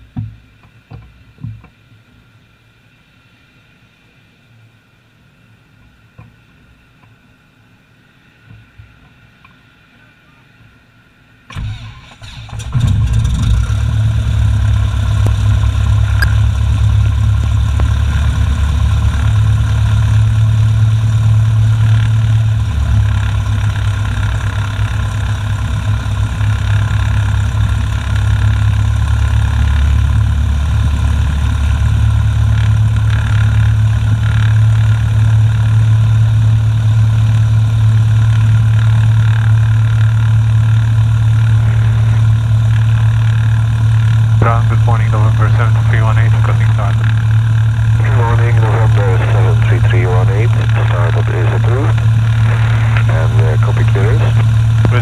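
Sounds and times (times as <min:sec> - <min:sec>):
engine starter cranking: 0:11.5 - 0:13.0
plane engine idling: 0:11.5 - 0:55.0.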